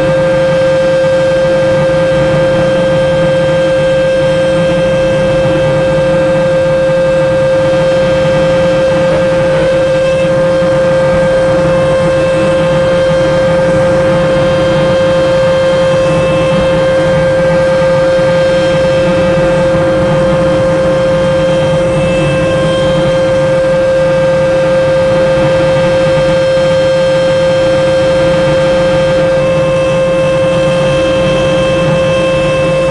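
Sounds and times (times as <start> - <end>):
car wash machine whine: 0.0 - 32.9.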